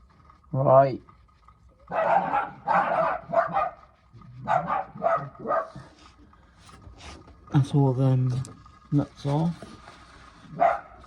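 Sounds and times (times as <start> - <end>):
dog barking: 1.9 - 5.9, 10.5 - 11.0.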